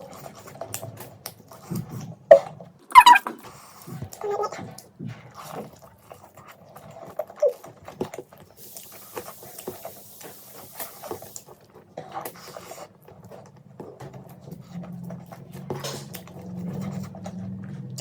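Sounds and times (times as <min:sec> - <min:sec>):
hiss: 0:08.6 - 0:11.5
chewing with wet mouth clicks: 0:14.5 - 0:18.0.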